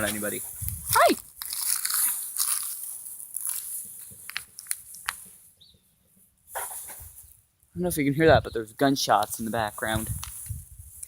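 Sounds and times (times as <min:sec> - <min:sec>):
footsteps crunching on frozen ground: 0:00.0 - 0:05.4.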